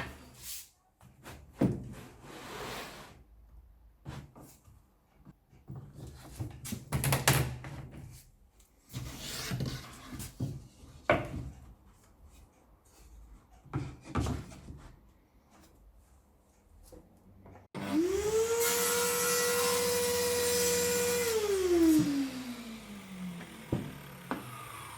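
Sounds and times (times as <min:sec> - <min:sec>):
wood scraping slide: 0:02.2 - 0:03.2.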